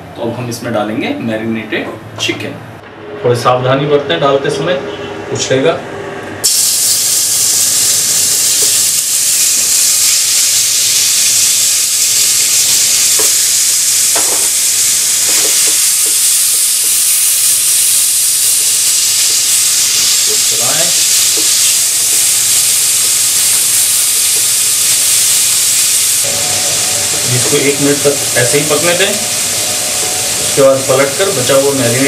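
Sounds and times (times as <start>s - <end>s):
chicken sizzling in hot oil: 6.4s - 32.0s.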